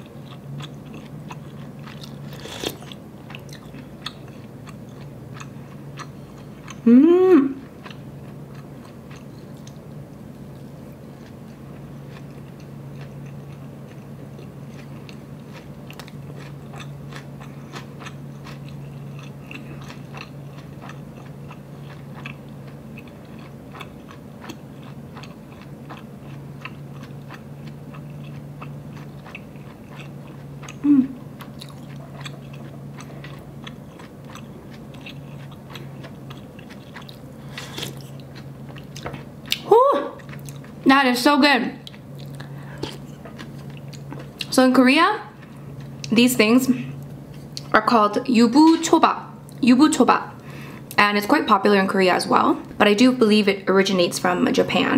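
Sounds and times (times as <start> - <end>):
steady low hum: 0.0 - 54.9
person humming: 6.8 - 7.6, 30.8 - 31.2, 39.6 - 40.2
wet mouth chewing clicks: 31.4 - 40.7.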